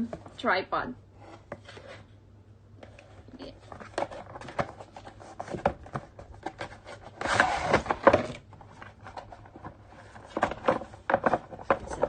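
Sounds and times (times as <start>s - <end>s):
plastic scraping rub: 2.8s - 12.0s.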